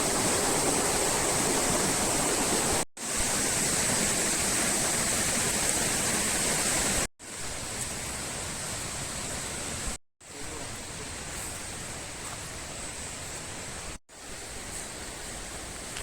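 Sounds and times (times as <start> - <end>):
river water rushing: 0.0 - 9.9.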